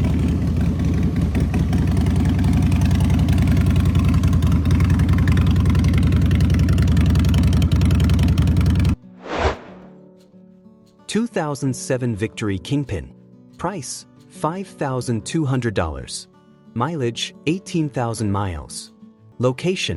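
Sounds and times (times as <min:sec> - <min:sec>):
motorcycle engine running: 0:00.0 - 0:09.0
brief swish: 0:09.2 - 0:10.0.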